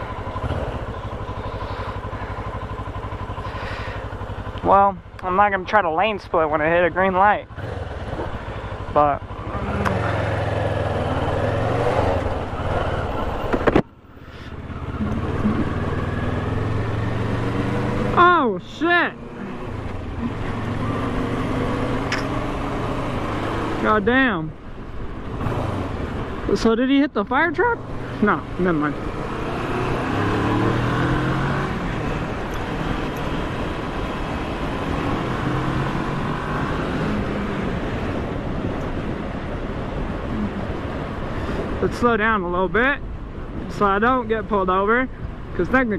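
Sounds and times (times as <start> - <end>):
motorcycle engine running: 0.0 - 41.7
wind and road noise: 0.0 - 45.9
sharp clicks: 22.0 - 22.4
rushing wind noise: 29.0 - 45.9.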